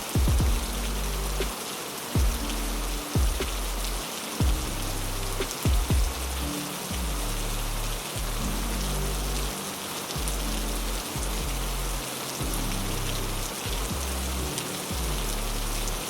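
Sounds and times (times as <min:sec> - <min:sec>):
heavy rain falling: 0:00.0 - 0:16.0
deep low rumble: 0:00.2 - 0:01.5, 0:02.2 - 0:09.5.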